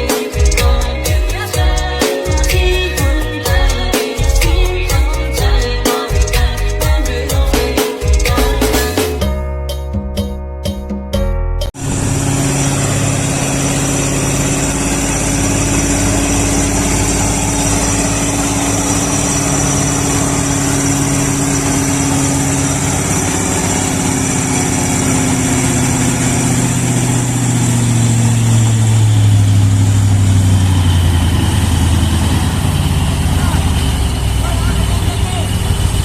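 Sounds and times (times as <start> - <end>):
heavy vehicle engine running: 0.0 - 9.2, 11.6 - 36.0.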